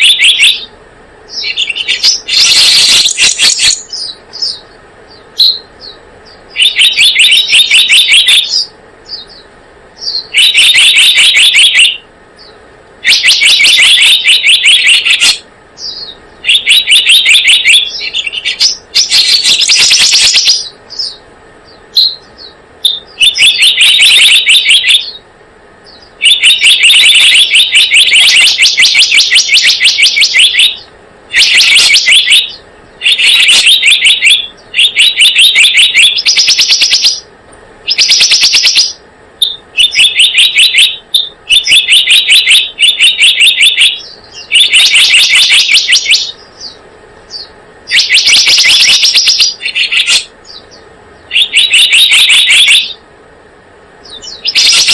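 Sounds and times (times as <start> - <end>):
bird chattering call: 0.0 - 0.7, 1.3 - 25.3, 25.9 - 37.3, 37.9 - 53.0, 54.1 - 54.9.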